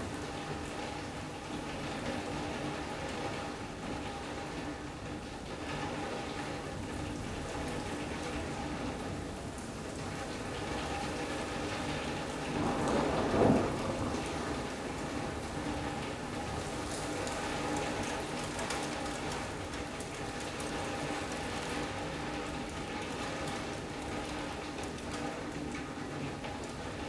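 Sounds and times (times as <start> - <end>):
steady rain: 0.0 - 27.0
thunder clap: 12.1 - 16.3.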